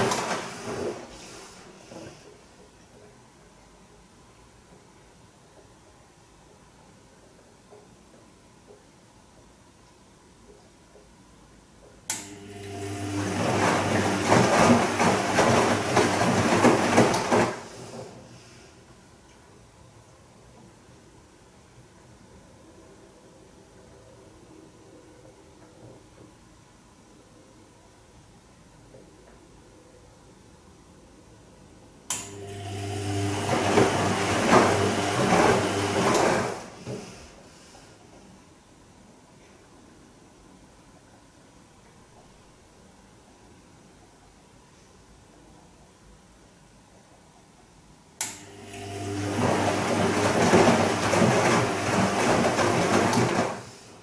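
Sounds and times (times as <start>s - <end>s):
water and laundry sloshing: 0.0s - 2.2s, 12.7s - 18.5s, 32.7s - 37.3s, 48.7s - 54.0s
washing machine humming: 0.0s - 3.2s, 12.2s - 19.1s, 32.1s - 38.2s, 48.2s - 54.0s.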